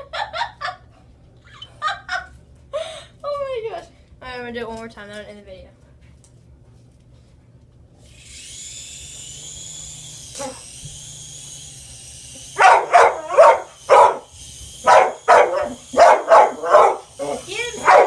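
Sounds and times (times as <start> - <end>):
toy helicopter rotor whine: 8.0 - 18.0
dog barking excitedly: 12.6 - 18.0.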